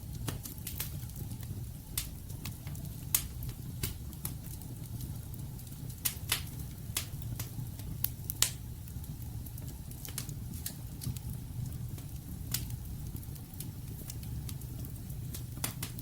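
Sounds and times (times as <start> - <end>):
fire rumbling in fireplace: 0.0 - 16.0
logs crackling and popping: 0.0 - 16.0.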